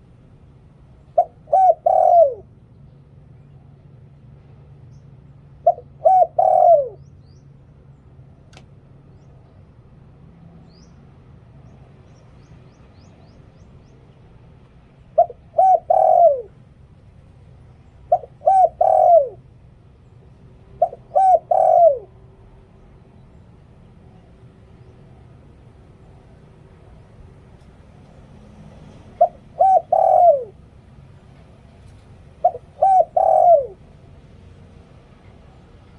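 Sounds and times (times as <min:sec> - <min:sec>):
dove cooing: 0:01.1 - 0:02.5, 0:05.6 - 0:07.0, 0:15.2 - 0:16.6, 0:18.1 - 0:19.5, 0:20.3 - 0:35.7.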